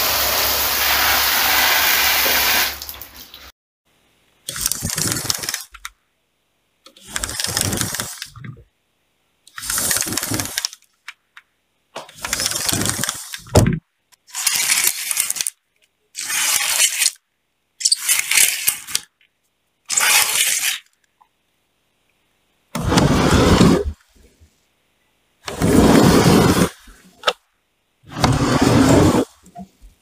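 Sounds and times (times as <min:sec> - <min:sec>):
sliding rattling strokes: 0:09.6 - 0:10.8.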